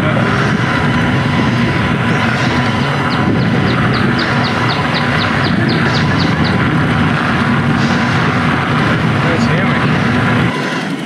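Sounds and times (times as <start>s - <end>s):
mountain bike rushing noise: 0.0s - 11.0s
songbird whistling: 2.5s - 6.6s.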